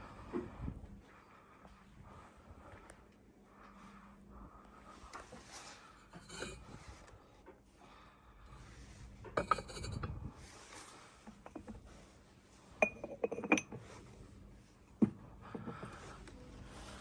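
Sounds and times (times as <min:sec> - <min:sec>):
ceramic items clinking: 0:06.1 - 0:06.8, 0:09.3 - 0:10.2, 0:11.3 - 0:11.8, 0:12.8 - 0:13.8.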